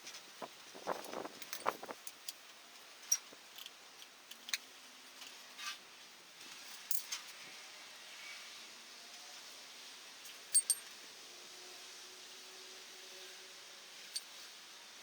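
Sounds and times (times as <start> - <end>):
light metallic clicks and clinks: 3.0 - 5.4, 10.3 - 11.0.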